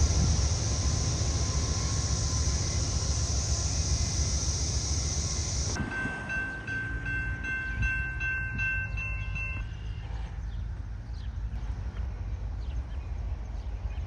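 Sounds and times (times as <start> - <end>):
low rumble: 0.0 - 7.0
railroad crossing bell ringing: 0.0 - 10.1
freight train rumbling past: 0.0 - 14.0
wheels hissing on rail: 0.0 - 14.0.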